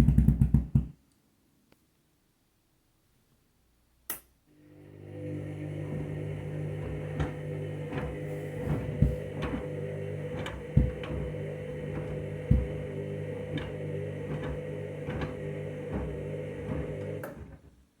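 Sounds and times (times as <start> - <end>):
washing machine motor hum: 4.5 - 18.0
washing machine drum thumps: 6.8 - 17.2.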